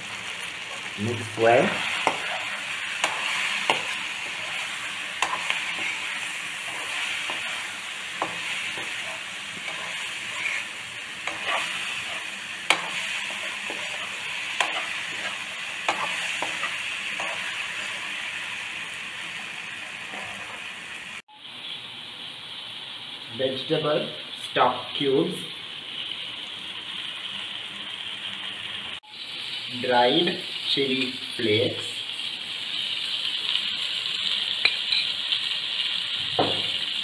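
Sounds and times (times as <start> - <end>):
food sizzling in oil: 0.0 - 37.0
metal spoon scraping a pan: 1.6 - 18.1, 19.8 - 20.7.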